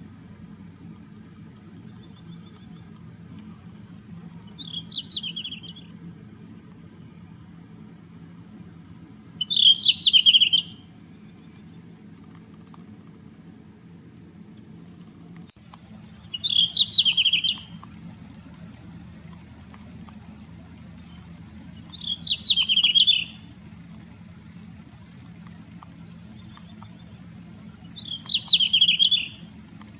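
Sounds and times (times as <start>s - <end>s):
songbird warbling: 0.0s - 6.0s, 9.4s - 12.7s, 15.6s - 29.9s
steady low hum: 0.0s - 29.9s.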